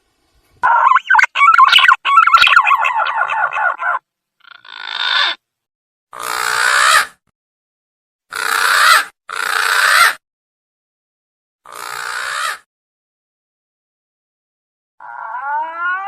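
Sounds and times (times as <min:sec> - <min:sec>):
pigeon harsh rasping calls: 0:00.6 - 0:05.4, 0:06.1 - 0:07.2, 0:08.3 - 0:10.2, 0:11.7 - 0:12.7.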